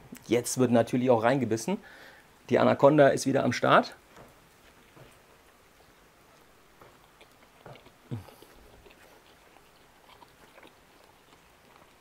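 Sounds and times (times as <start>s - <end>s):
person chewing food: 4.1s - 12.0s.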